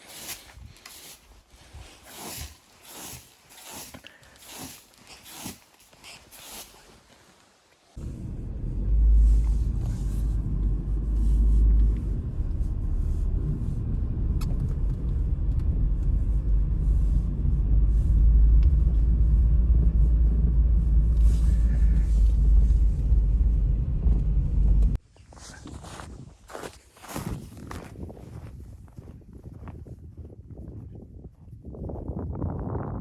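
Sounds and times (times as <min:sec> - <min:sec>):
wind buffeting microphone: 0:25.8 - 0:33.0.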